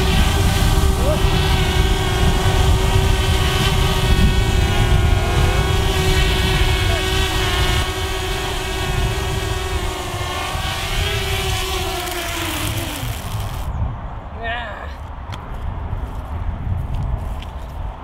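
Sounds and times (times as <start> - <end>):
drone propellers whining: 0.0 - 13.7
wind rumble on microphone: 0.0 - 18.0.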